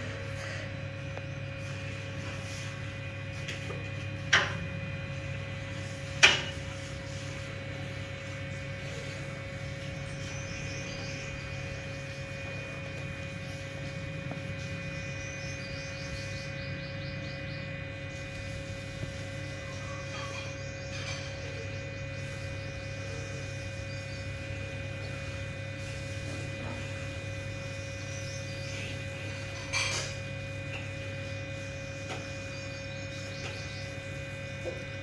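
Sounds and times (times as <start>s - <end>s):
machine hum with whine: 0.0s - 35.0s.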